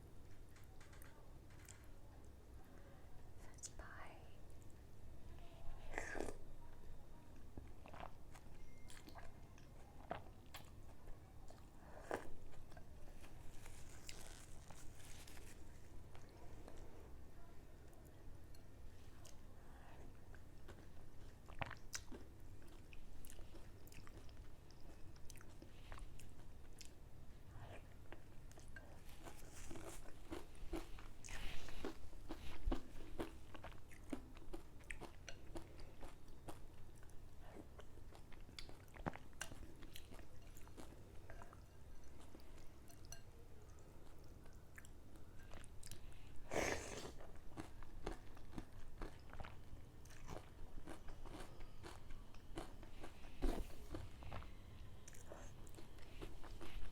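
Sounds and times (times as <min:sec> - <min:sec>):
chewing and biting: 0:47.2 - 0:56.9.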